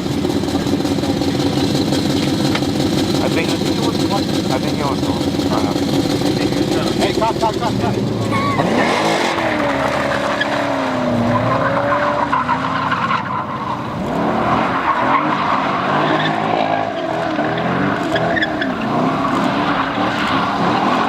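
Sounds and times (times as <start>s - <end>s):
car engine at high revs: 0.0s - 21.0s
tyres squealing: 7.4s - 14.0s.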